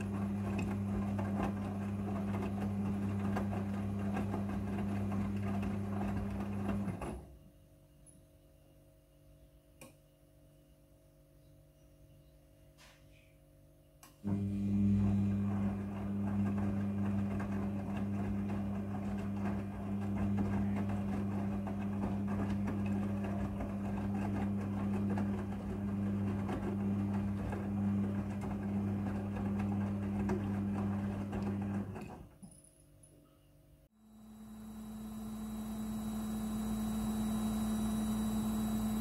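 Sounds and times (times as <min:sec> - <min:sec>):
washing machine swishing: 0:00.0 - 0:07.1, 0:14.4 - 0:32.0
washing machine motor hum: 0:00.0 - 0:07.4, 0:14.2 - 0:32.3, 0:34.0 - 0:39.0.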